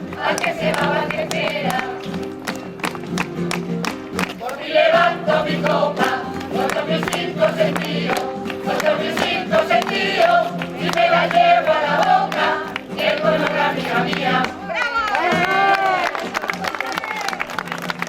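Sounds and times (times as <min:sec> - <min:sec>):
choir singing: 0:00.0 - 0:02.0, 0:04.4 - 0:14.7
acoustic guitar: 0:00.0 - 0:18.0.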